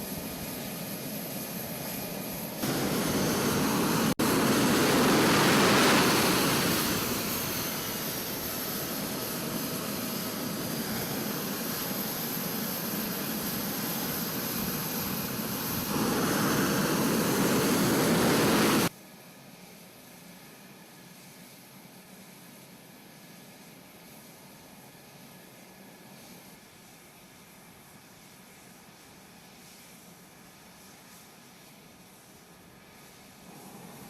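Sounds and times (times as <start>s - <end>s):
jet engine roaring: 2.6s - 18.9s.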